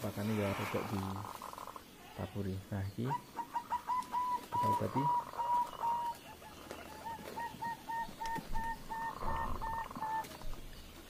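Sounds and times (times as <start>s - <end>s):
bird calling in rapid notes: 3.1s - 10.3s.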